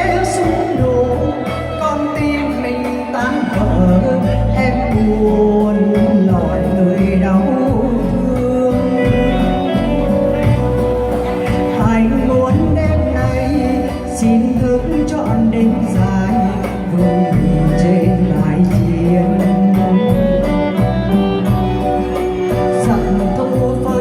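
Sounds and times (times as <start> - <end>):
instrumental backing music: 0.0 - 24.0
person singing: 0.0 - 24.0
pulsing bass line: 0.0 - 24.0.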